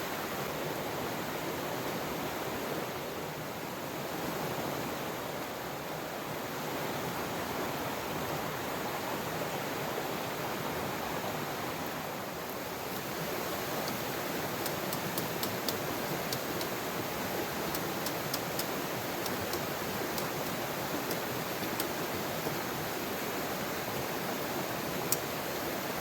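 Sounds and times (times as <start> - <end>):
flowing river: 0.0 - 26.0
heavy rain: 10.5 - 26.0.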